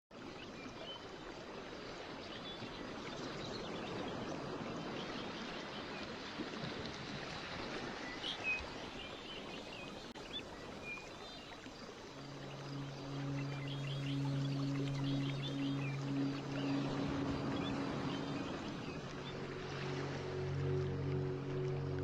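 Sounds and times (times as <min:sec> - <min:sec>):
running water: 0:00.2 - 0:22.0
soft music with low notes: 0:11.8 - 0:22.0.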